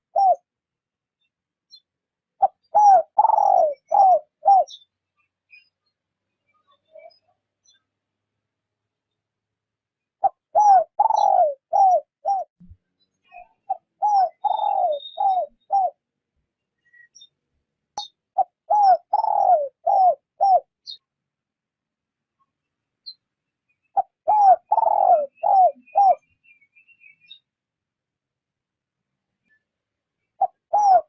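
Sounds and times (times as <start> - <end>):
dove cooing: 0.0 - 0.5, 2.4 - 4.8, 10.2 - 12.5, 13.7 - 16.0, 18.4 - 20.7, 24.0 - 26.2, 30.4 - 31.0.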